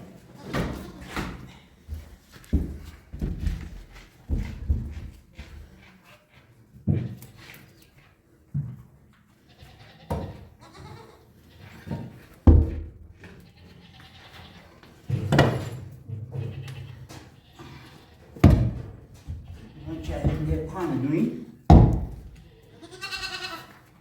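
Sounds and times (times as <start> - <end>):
livestock bleating: 9.5 - 11.9, 13.4 - 14.8, 16.4 - 18.3, 22.3 - 23.8.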